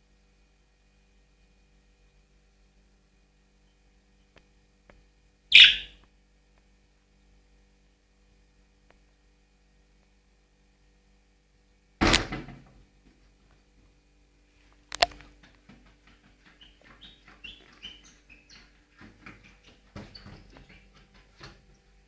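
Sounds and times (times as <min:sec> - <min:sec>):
parrot chirping: 0:05.5 - 0:06.0
sharp click: 0:14.9 - 0:15.2.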